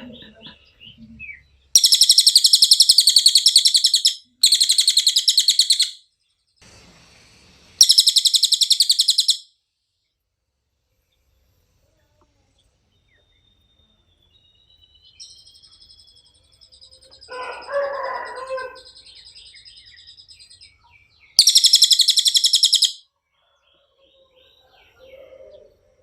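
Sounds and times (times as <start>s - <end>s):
songbird singing high trills: 1.2s - 6.0s, 7.8s - 9.5s, 18.3s - 23.0s.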